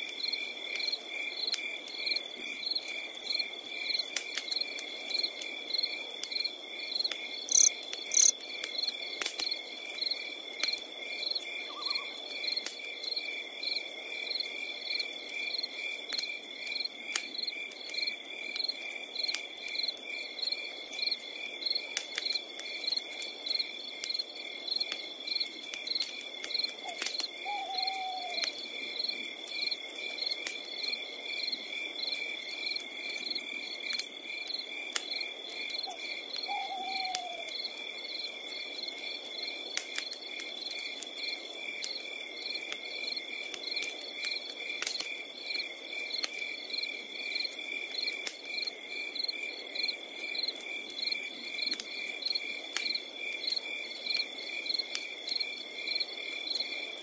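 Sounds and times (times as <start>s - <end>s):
night ambience hiss: 0.0s - 22.0s
crickets chirping: 0.1s - 57.0s.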